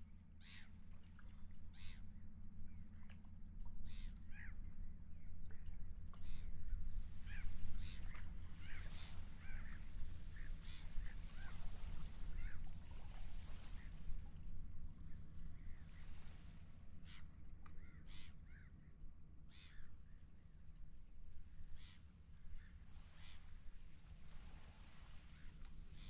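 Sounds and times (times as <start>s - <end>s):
seagulls calling: 7.3s - 12.7s.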